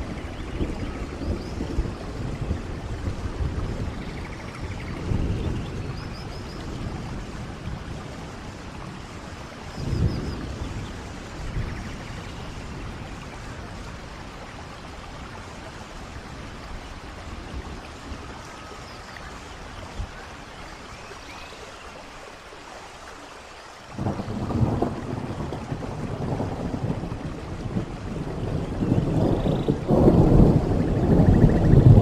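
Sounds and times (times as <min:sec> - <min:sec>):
thunder rumble: 0:00.0 - 0:18.5, 0:23.9 - 0:32.0
rushing waterfall: 0:00.0 - 0:32.0
steady rain falling: 0:00.0 - 0:32.0.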